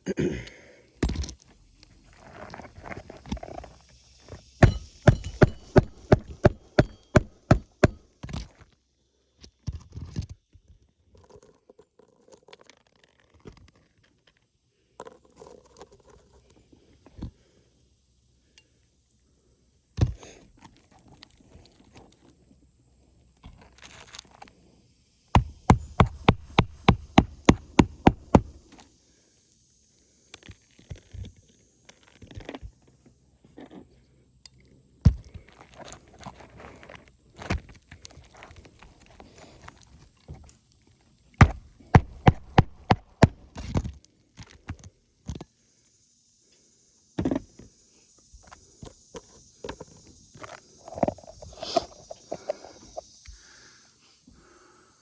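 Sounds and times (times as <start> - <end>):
hammer on roof shingles: 4.6 - 8.0, 25.4 - 28.6, 41.4 - 43.9.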